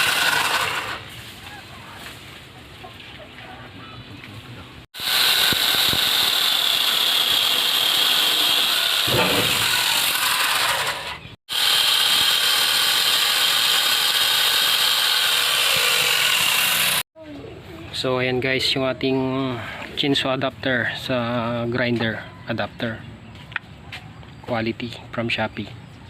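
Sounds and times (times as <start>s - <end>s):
angle grinder motor whine: 0.0s - 1.1s, 5.0s - 17.0s.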